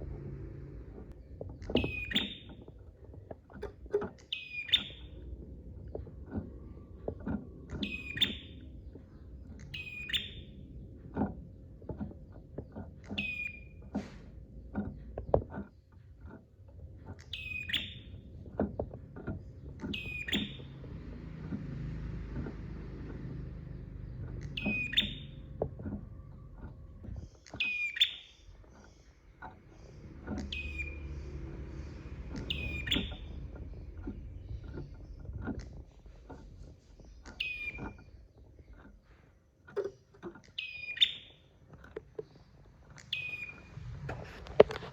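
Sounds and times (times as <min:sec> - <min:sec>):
bird calling: 0:01.6 - 0:02.7, 0:03.6 - 0:05.3, 0:07.7 - 0:10.6, 0:17.2 - 0:18.2, 0:19.7 - 0:21.2, 0:23.1 - 0:35.8, 0:37.0 - 0:38.8, 0:40.4 - 0:41.6, 0:42.3 - 0:44.4.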